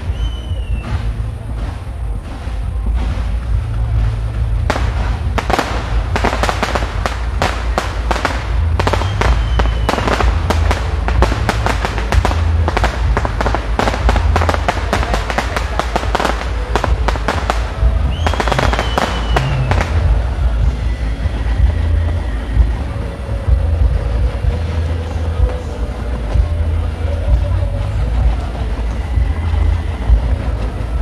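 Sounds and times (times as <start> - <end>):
falling firework whistle: 0.0 - 1.8, 4.8 - 12.1, 15.4 - 20.8
fireworks bangs and crackling: 0.0 - 31.0.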